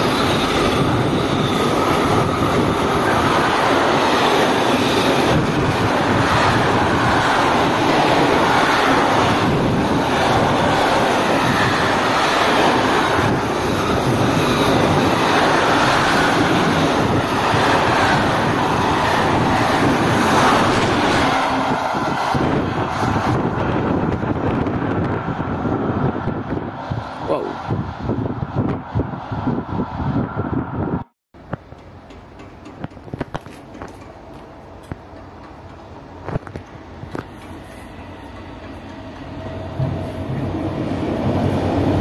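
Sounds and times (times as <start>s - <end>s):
wind on microphone: 0.0s - 31.1s
freight train rolling past: 0.0s - 42.0s.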